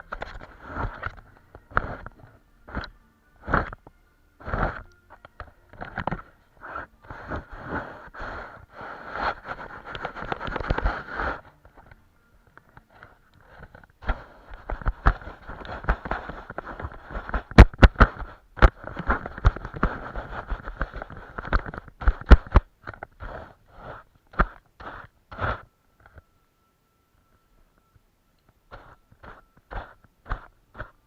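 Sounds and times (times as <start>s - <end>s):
paintbrush scrubbing on canvas: 6.6s - 11.5s, 23.2s - 25.6s, 28.7s - 31.0s.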